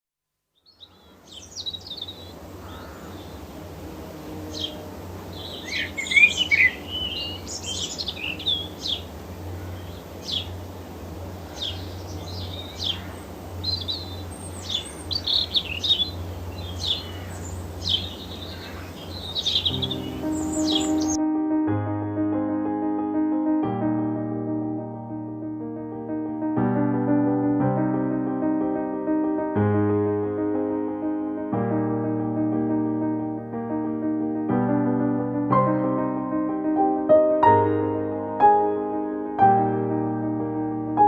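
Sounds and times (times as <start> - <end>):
birds chirping and singing: 0.6 - 3.6, 4.2 - 10.7, 11.4 - 21.2.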